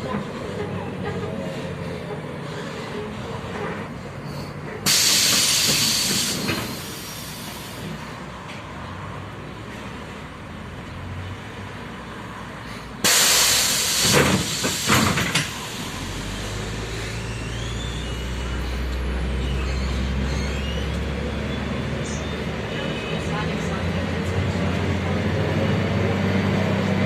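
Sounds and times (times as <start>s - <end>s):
bus engine drone: 0.0s - 27.0s
compressed air hiss: 4.9s - 7.8s, 13.0s - 15.9s.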